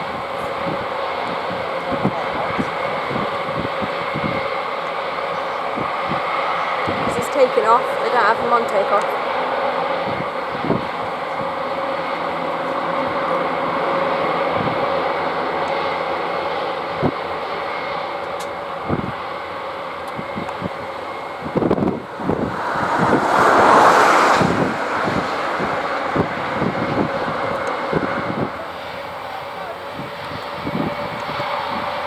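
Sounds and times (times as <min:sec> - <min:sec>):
wind buffeting microphone: 0:00.0 - 0:15.3, 0:16.9 - 0:32.0
turboprop engines droning: 0:00.0 - 0:32.0.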